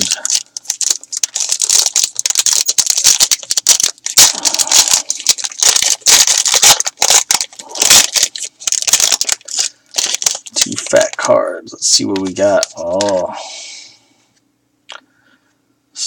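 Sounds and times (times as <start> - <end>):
wrapper tearing and crinkling: 0.0 - 11.3, 12.0 - 13.3.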